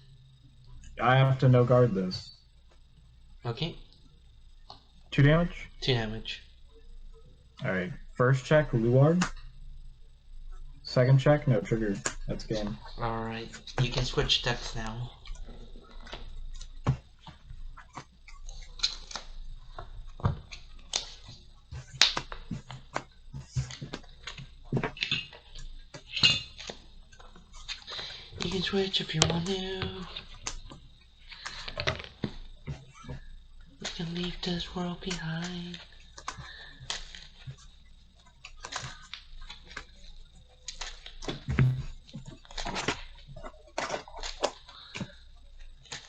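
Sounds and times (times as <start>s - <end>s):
cards clicking and tapping: 20.2s - 26.8s, 35.1s - 37.6s.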